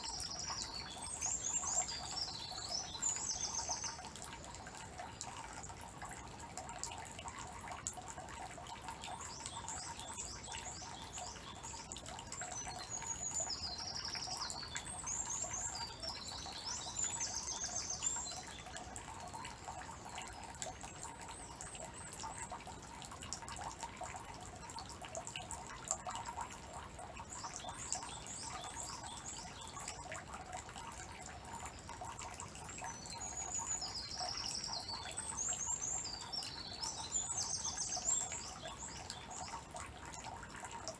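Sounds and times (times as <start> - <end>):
water trickling into basin: 0.0 - 40.9
songbirds chirping and trilling: 8.8 - 21.6, 27.4 - 40.4.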